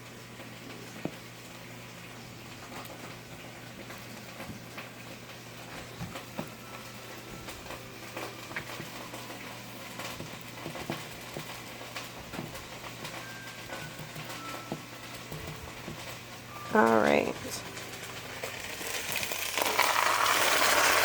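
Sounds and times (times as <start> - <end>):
steaks sizzling in skillet: 17.7 - 21.0.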